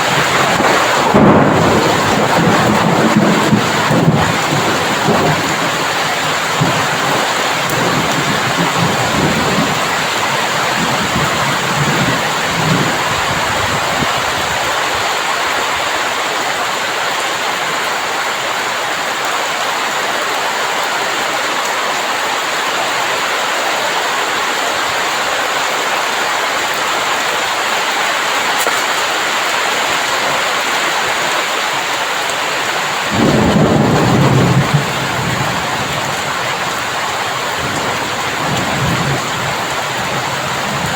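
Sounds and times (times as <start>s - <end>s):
thunder rumbling: 0.0s - 15.0s, 28.8s - 40.9s
heavy rain falling: 0.0s - 40.9s.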